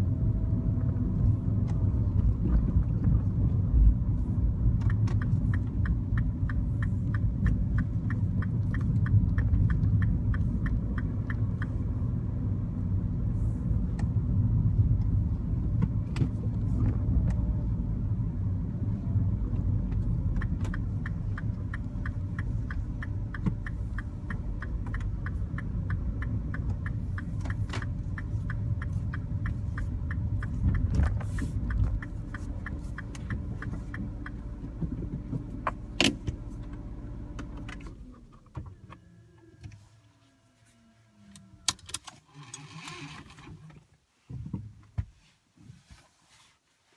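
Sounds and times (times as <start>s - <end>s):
car engine and road rumble: 0.0s - 46.9s
turn signal clicking: 0.7s - 39.8s.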